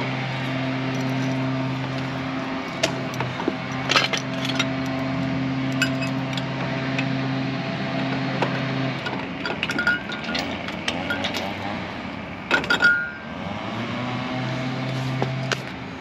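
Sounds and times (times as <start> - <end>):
metal tools clinking: 3.1 - 5.0, 5.7 - 6.5, 9.4 - 11.6, 12.5 - 13.2.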